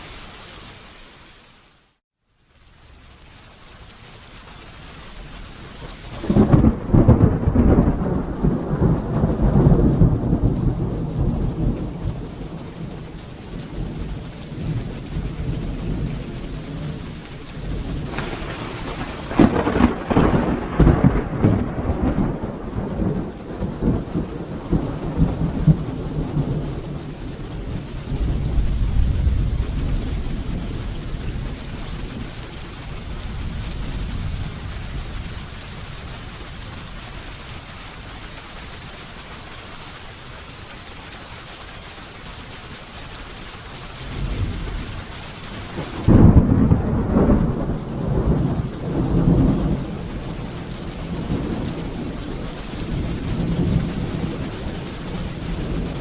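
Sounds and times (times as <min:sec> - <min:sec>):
steady rain falling: 0:00.0 - 0:56.0
thunder cracking and rumbling: 0:05.8 - 0:36.8, 0:44.0 - 0:56.0.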